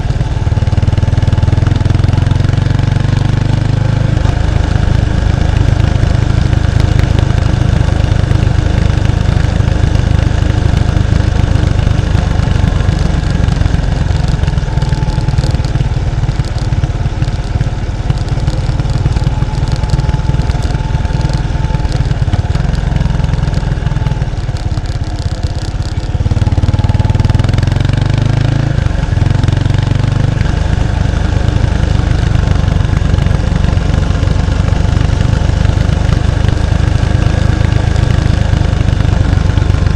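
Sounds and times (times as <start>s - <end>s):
motorcycle exhaust running: 0.0s - 39.9s.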